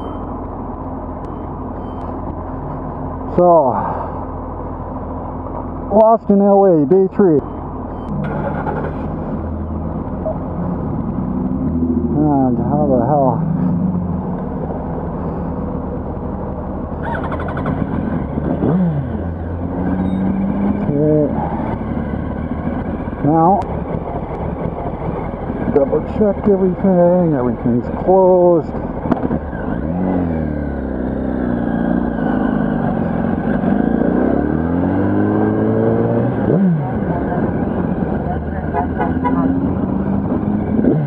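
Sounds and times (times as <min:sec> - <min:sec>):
motorcycle engine revving: 0:17.0 - 0:28.2, 0:28.8 - 0:41.0.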